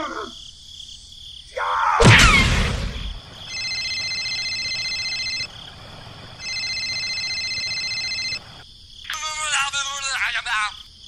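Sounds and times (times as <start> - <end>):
electronic beeper tone: 3.5 - 5.5, 6.1 - 8.6.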